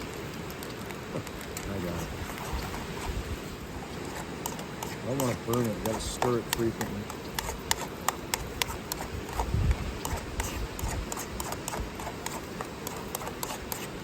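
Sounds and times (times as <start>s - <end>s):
wind buffeting microphone: 1.7s - 4.2s, 8.4s - 12.0s
utensil scraping frying pan: 1.8s - 14.0s.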